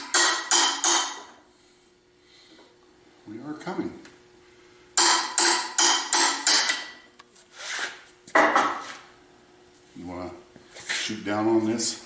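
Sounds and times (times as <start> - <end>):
hammer striking steel: 0.0 - 1.4, 5.0 - 7.0.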